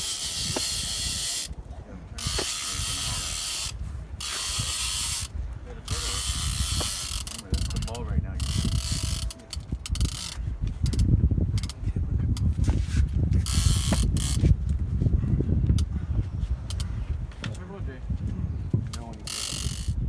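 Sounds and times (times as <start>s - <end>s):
fishing reel ratcheting: 0.0s - 1.6s, 2.2s - 5.3s, 5.9s - 11.8s, 13.4s - 14.5s, 19.0s - 20.0s.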